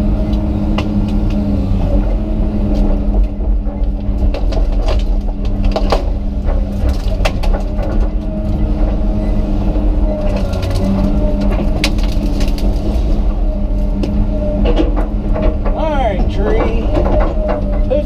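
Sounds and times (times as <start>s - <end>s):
excavator diesel engine running: 0.0s - 18.0s
tree limbs cracking: 3.8s - 9.0s, 10.2s - 14.3s.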